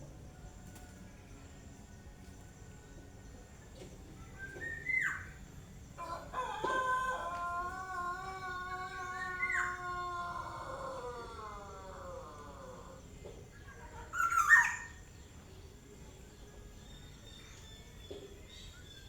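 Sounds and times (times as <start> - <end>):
bird singing whistles: 4.2 - 5.5.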